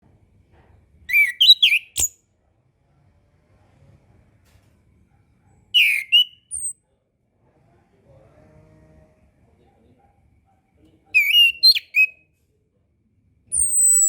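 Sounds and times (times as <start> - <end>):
thrush singing whistled notes: 1.1 - 2.1, 5.8 - 6.7, 11.2 - 12.2, 13.5 - 14.0.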